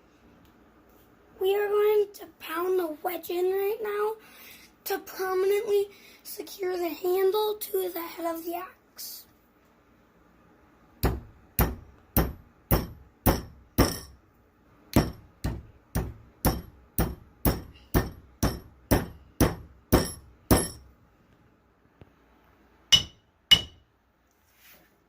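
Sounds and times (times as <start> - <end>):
hammer pounding a wedge: 11.0 - 14.2, 14.9 - 20.9, 22.9 - 23.8.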